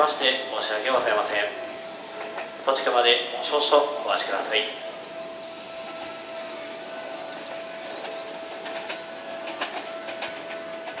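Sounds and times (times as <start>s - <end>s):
electric train whine: 0.0s - 11.0s
wheel clicks over rail joints: 8.0s - 11.0s.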